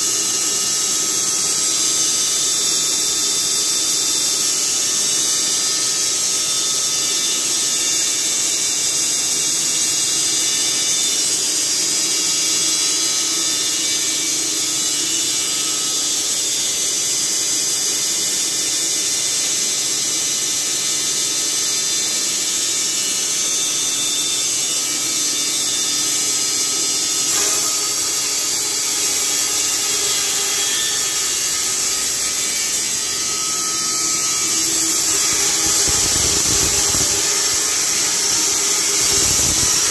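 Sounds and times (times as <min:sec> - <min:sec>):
band saw cutting log whine: 0:00.0 - 0:39.9.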